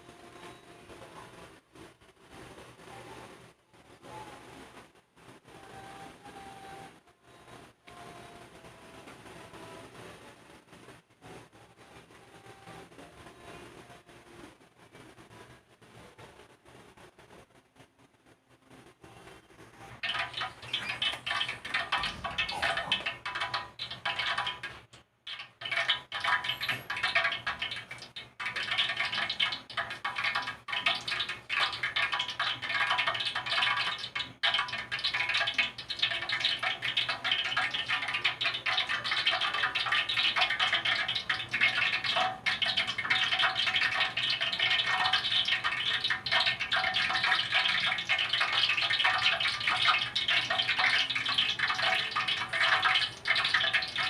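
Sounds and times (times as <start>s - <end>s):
hot oil sizzling and crackling: 20.0s - 54.0s.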